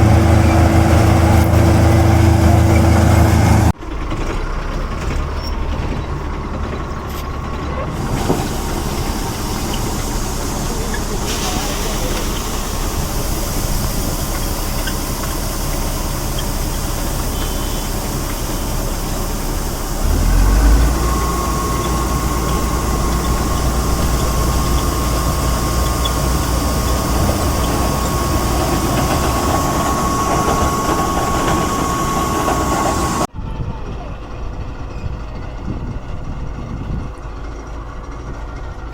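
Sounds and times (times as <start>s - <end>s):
combine harvester running: 0.0s - 38.9s
deep machine rumble: 0.0s - 38.9s
high machine whine: 7.8s - 33.3s.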